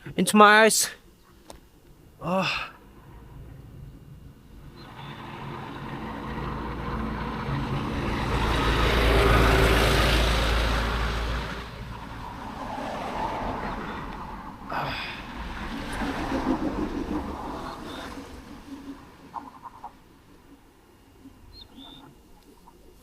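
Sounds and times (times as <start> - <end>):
motor vehicle passing close by: 2.9 - 20.2.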